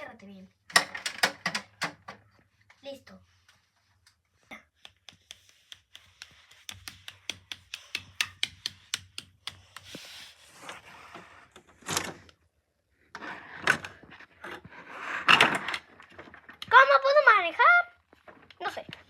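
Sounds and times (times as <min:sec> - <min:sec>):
plastic toy clicks: 0:00.7 - 0:02.1
plastic toys knocking: 0:00.7 - 0:02.3, 0:04.9 - 0:09.9.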